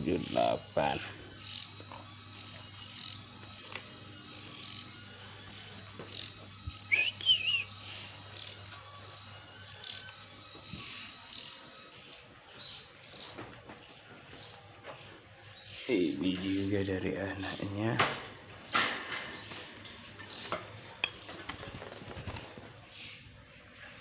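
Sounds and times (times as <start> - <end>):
bird chicks chirping: 0.0 - 24.0
lower wavering bird call: 6.9 - 7.7.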